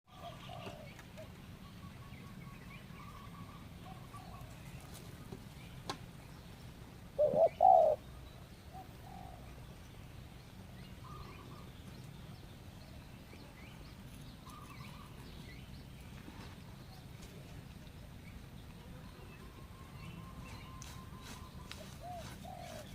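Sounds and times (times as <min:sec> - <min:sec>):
doves cooing: 0:00.1 - 0:01.4, 0:07.2 - 0:08.0, 0:18.8 - 0:22.9.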